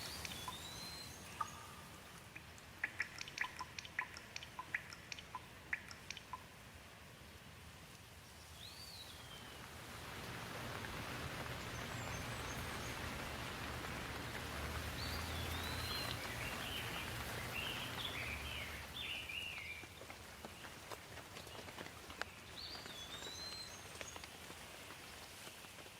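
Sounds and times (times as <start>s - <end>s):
bird chirping: 0.0s - 6.4s, 14.8s - 20.0s, 22.3s - 24.2s
rain falling: 0.0s - 25.9s.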